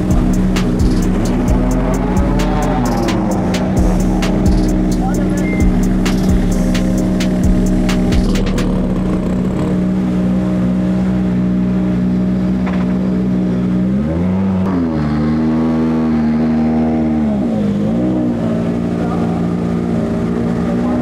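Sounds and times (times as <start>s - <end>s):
rally car engine idling: 0.0s - 13.9s, 17.2s - 21.0s.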